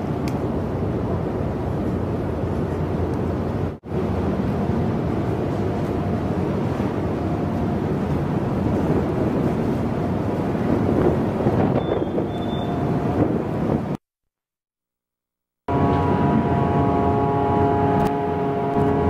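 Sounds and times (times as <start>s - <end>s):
ferry engine rumble: 0.0s - 14.0s, 15.7s - 19.0s
wind buffeting microphone: 0.0s - 14.0s.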